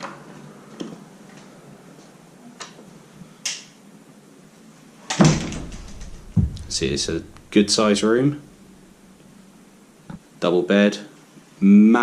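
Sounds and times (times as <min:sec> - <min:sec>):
thump: 0:05.2 - 0:09.4.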